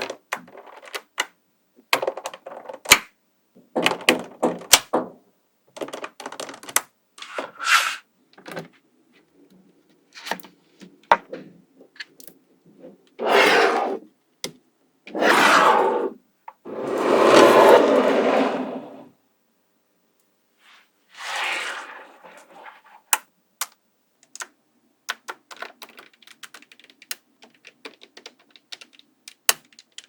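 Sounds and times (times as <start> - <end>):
balls rattling and scraping: 15.1 - 19.1, 21.2 - 23.2
magnetic balls clicking together: 23.1 - 30.0.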